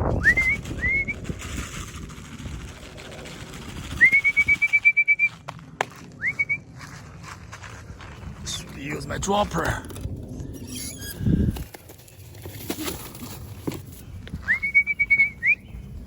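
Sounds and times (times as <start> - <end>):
person whistling calls: 0.0 - 1.2, 4.0 - 5.5, 6.2 - 6.6, 14.4 - 15.7.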